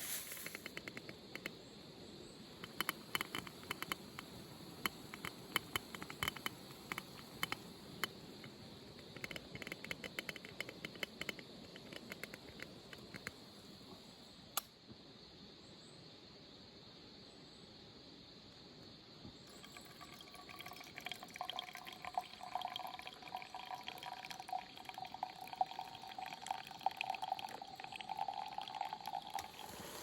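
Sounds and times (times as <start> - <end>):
fire hiss: 0.0 - 0.9, 29.4 - 30.0
campfire crackling: 0.0 - 1.5.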